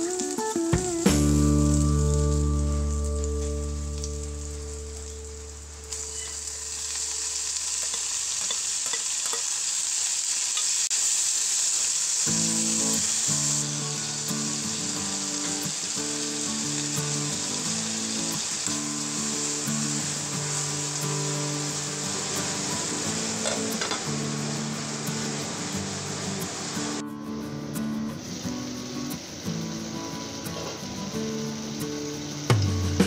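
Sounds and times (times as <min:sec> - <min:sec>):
background music: 0:00.0 - 0:06.0, 0:20.8 - 0:33.0
tomatoes sizzling in hot oil: 0:00.0 - 0:33.0.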